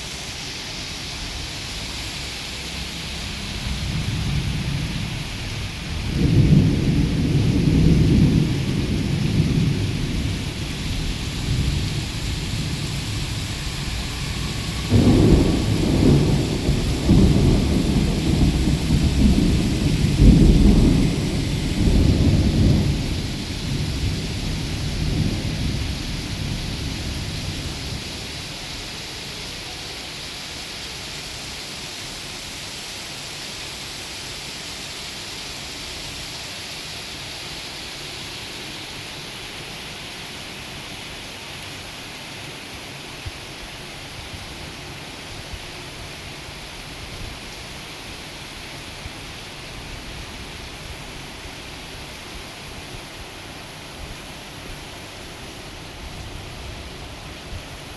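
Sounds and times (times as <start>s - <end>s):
steady rain falling: 0.0s - 57.9s
low rumble of thunder: 2.6s - 29.0s.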